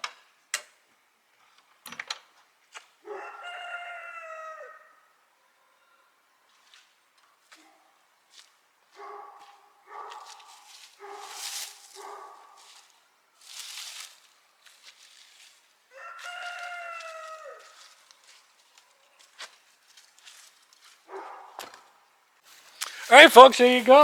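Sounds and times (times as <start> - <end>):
rooster crowing: 3.1 - 5.2, 15.9 - 17.9.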